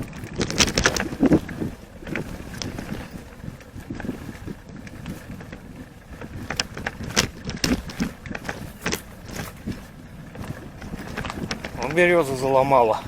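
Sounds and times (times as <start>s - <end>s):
wind rumbling on microphone: 0.0s - 13.0s
knocks and clicks: 0.2s - 3.7s, 6.2s - 9.8s.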